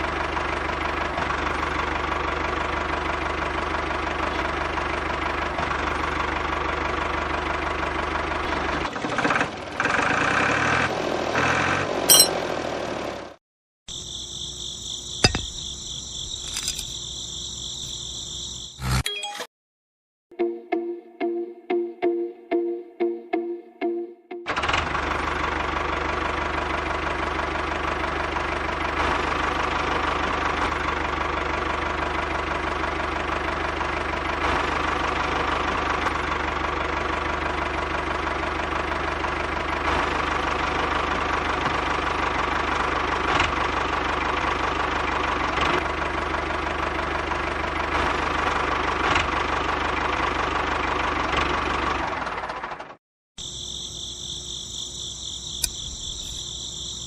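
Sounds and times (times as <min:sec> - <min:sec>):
cricket-like chirping: 0:13.9 - 0:19.0, 0:53.4 - 0:57.0.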